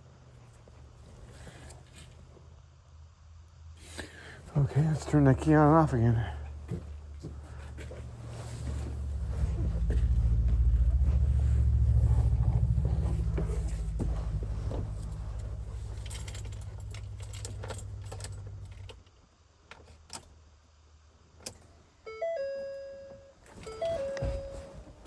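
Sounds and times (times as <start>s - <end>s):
dashboard chime: 22.1s - 24.7s.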